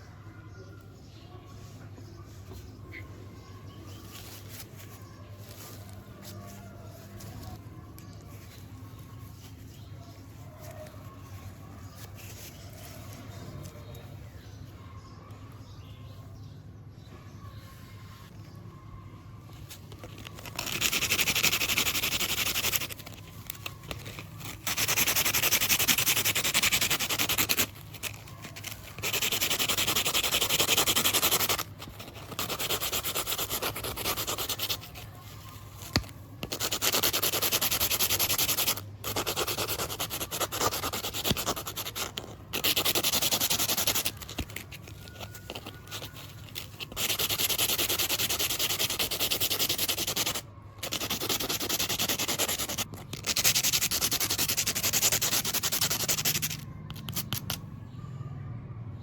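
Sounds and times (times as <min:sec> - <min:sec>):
faint low hum: 0:05.0 - 0:20.7
hand sanding strokes: 0:24.4 - 0:28.2, 0:28.9 - 0:35.0, 0:45.4 - 0:56.6.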